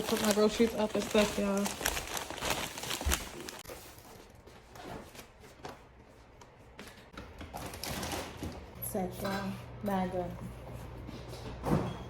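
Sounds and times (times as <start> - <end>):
bags rustling: 0.0 - 4.4.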